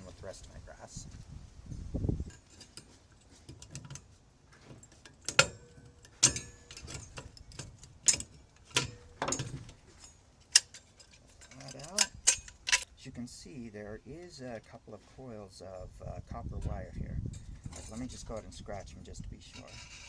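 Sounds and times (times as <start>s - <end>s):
metallic clinks of small parts: 1.7s - 12.9s.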